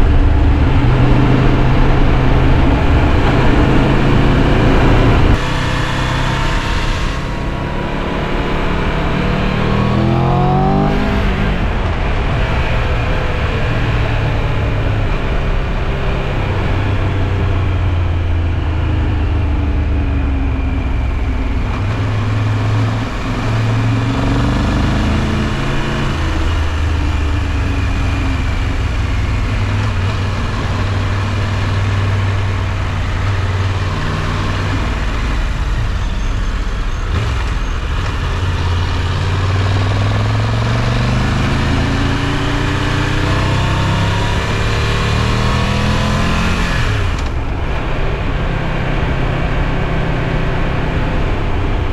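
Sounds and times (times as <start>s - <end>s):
wind rush: 0.0s - 16.8s, 19.9s - 26.8s
motorcycle engine running: 0.0s - 51.9s.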